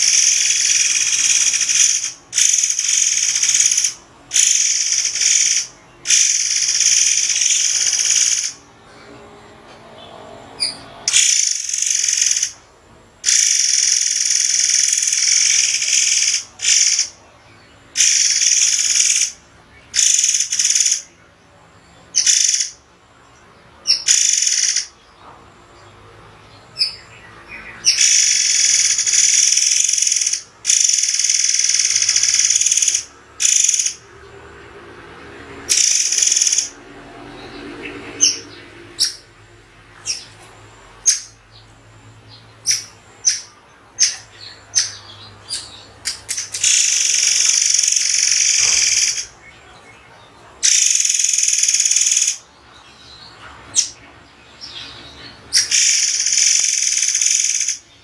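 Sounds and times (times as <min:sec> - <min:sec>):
bird calling shrilly: 0:00.0 - 0:08.6, 0:10.6 - 0:12.6, 0:13.2 - 0:17.2, 0:18.0 - 0:21.0, 0:23.9 - 0:24.9, 0:27.8 - 0:34.0, 0:35.7 - 0:36.8, 0:46.3 - 0:49.4, 0:50.6 - 0:52.4, 0:55.5 - 0:57.8.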